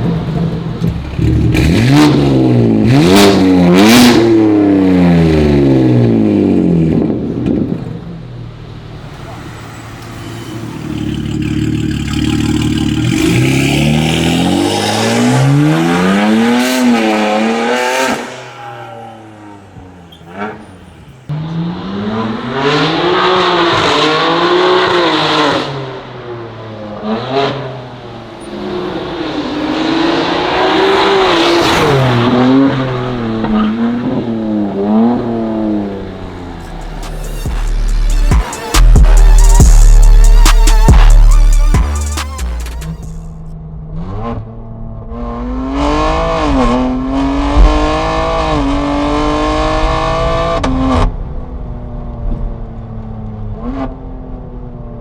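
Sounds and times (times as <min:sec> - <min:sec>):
exhaust cracks: 0:00.0 - 0:04.2, 0:10.0 - 0:21.3, 0:30.5 - 0:43.6
car engine revving: 0:00.0 - 0:08.0, 0:08.7 - 0:52.5.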